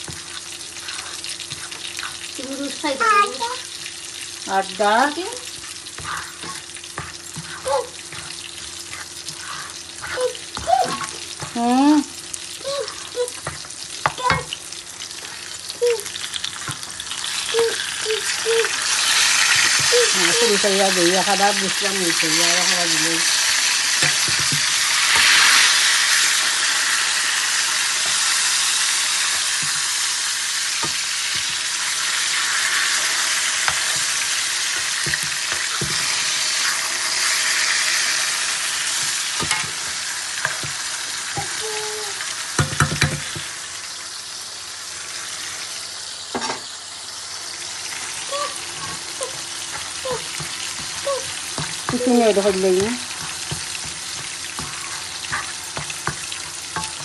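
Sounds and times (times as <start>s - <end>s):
spices sizzling in a pan: 0.0s - 57.0s
spoon knocking against pan: 24.0s - 24.8s, 33.7s - 36.1s, 42.6s - 43.5s, 48.8s - 57.0s.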